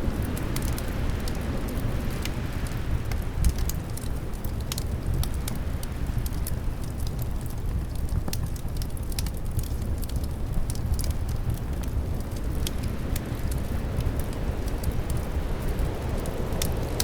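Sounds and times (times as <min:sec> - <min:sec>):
low rumble of wind: 0:00.0 - 0:17.0
wood fire crackling: 0:00.0 - 0:17.0.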